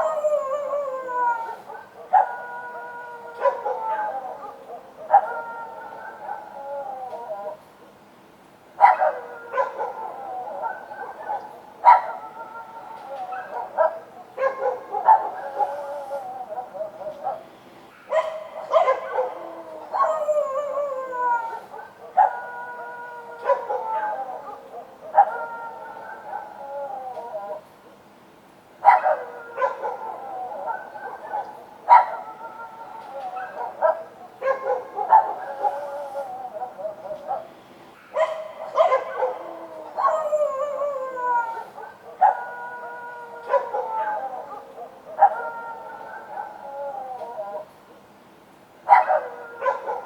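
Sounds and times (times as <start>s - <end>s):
dogs howling: 0.0s - 7.7s, 8.8s - 17.5s, 18.1s - 27.7s, 28.8s - 47.8s, 48.8s - 50.0s
dogs barking: 3.3s - 6.5s, 8.8s - 12.4s, 13.2s - 20.7s, 21.6s - 26.6s, 28.8s - 40.9s, 41.5s - 47.7s, 48.9s - 50.0s.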